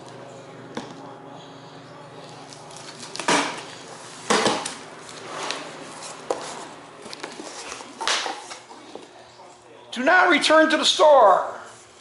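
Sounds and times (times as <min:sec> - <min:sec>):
cardboard rustling: 0:02.7 - 0:08.9.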